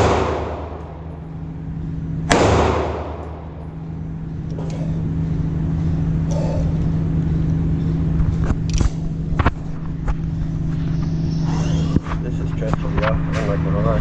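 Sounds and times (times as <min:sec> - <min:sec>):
gunshots cracking: 0:00.0 - 0:01.1, 0:02.3 - 0:03.6
steady low hum: 0:00.0 - 0:14.0.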